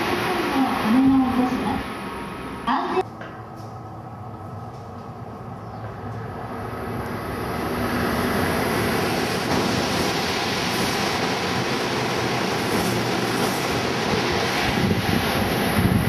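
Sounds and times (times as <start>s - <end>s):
high-speed train passing: 0.0s - 16.0s.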